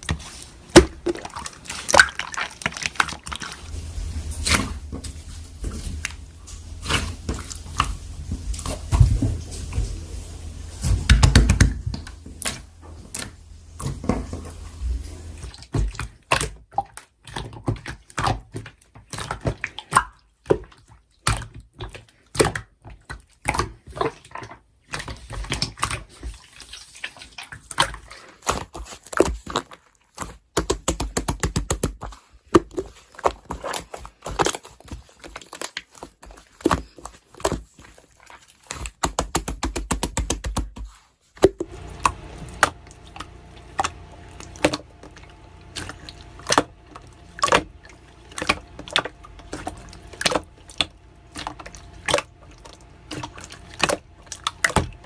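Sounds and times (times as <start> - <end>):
slime squishing with wet pops: 0.0 - 3.6, 15.4 - 55.0.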